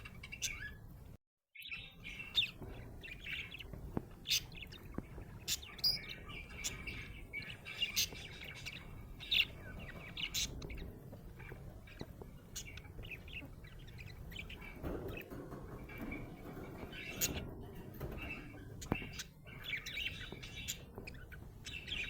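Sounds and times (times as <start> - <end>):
budgerigar chirping: 1.6 - 15.2.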